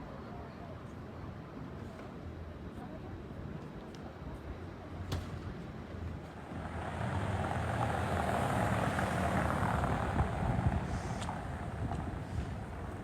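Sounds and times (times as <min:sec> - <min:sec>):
vehicle passing on road: 0:06.3 - 0:13.0.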